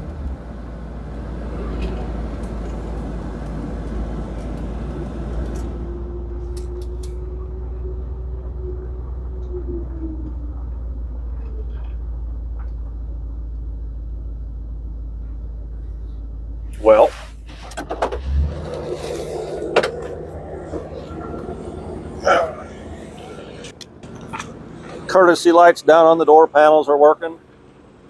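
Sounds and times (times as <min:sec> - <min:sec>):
car engine idling: 0:00.0 - 0:28.0
whine dropping in pitch: 0:05.5 - 0:11.8, 0:18.3 - 0:25.0.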